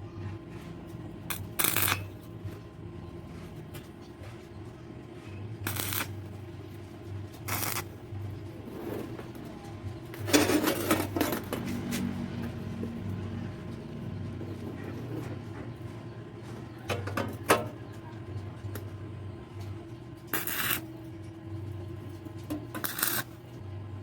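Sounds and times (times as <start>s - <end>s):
objects scraping and clinking: 10.2s - 12.1s, 22.4s - 23.3s.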